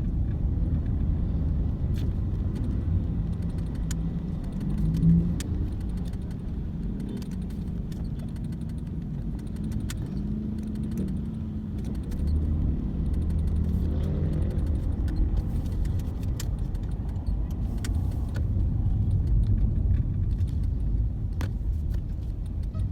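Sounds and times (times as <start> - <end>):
car engine low rumble: 0.0 - 22.9
light clicks and rattles: 0.0 - 22.9.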